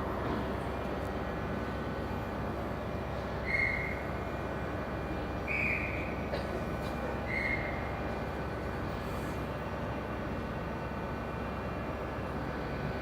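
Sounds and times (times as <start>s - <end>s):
train rumbling: 0.0s - 9.2s.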